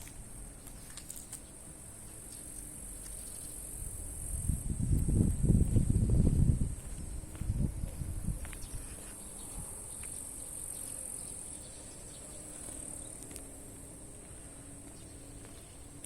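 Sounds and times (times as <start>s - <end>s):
insects chirring: 0.0s - 16.0s
dull low thumps: 4.3s - 8.7s.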